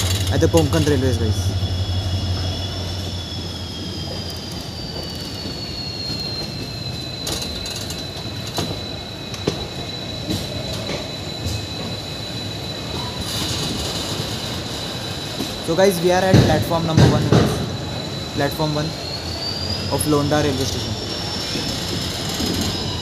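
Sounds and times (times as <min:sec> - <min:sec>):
wheels clacking over rail joints: 0:00.0 - 0:01.1
low train rumble: 0:00.0 - 0:23.0
train wheels squealing: 0:00.0 - 0:23.0.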